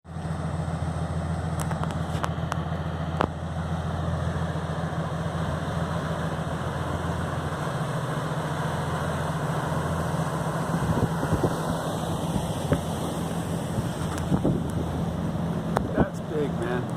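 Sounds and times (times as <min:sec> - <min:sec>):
boat engine humming: 0:00.0 - 0:16.9
water: 0:00.0 - 0:16.9
wind noise: 0:10.7 - 0:13.0, 0:13.6 - 0:15.1.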